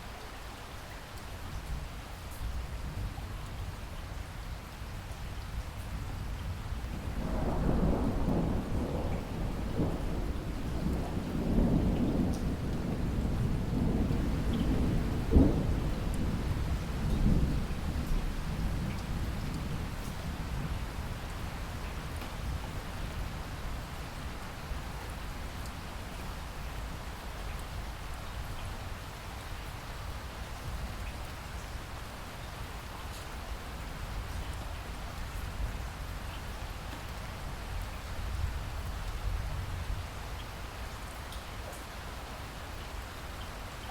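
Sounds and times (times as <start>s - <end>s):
steady rain: 0.0s - 43.9s
thunder rumbling: 7.0s - 21.1s.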